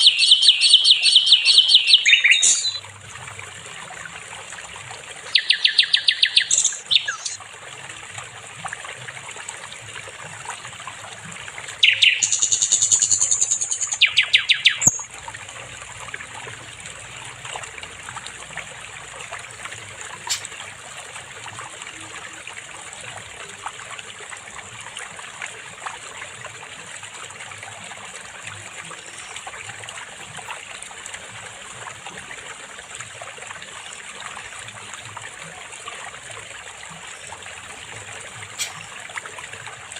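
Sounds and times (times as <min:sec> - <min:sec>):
faint bird chirp: 0:00.0 - 0:02.8, 0:05.3 - 0:07.4, 0:11.8 - 0:15.1, 0:38.6 - 0:39.0
songbird singing rapid phrases: 0:00.0 - 0:02.8, 0:05.3 - 0:07.4, 0:11.8 - 0:15.1
stream trickling: 0:00.0 - 0:39.9.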